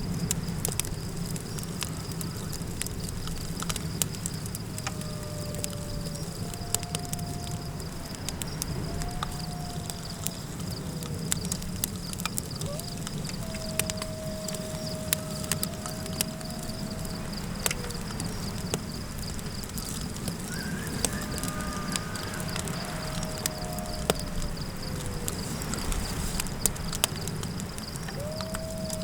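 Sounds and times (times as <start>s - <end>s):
campfire crackling and popping: 0.0s - 29.0s
low wind rumble: 0.0s - 29.0s
coyote howls: 4.3s - 26.5s, 28.0s - 29.0s
higher wavering calls: 4.6s - 11.5s, 12.5s - 26.3s, 28.0s - 29.0s.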